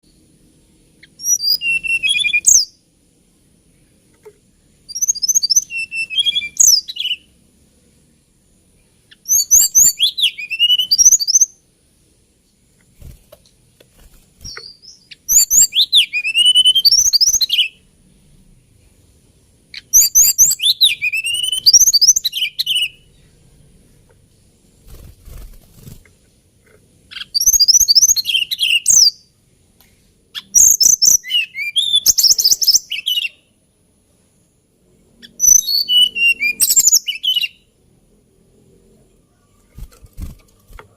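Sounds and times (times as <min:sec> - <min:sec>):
bird singing warbling phrases: 0:01.0 - 0:02.8, 0:04.8 - 0:07.4, 0:09.0 - 0:11.6, 0:14.4 - 0:17.9, 0:19.7 - 0:23.4, 0:27.1 - 0:29.4, 0:30.3 - 0:33.6, 0:35.2 - 0:37.7.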